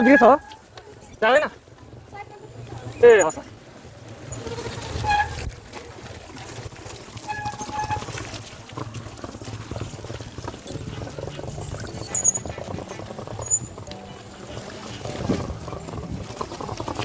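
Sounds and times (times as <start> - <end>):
high squeak: 0.0 - 1.2, 4.3 - 8.8, 9.8 - 14.2
bicycle rattling and knocking: 0.0 - 17.0.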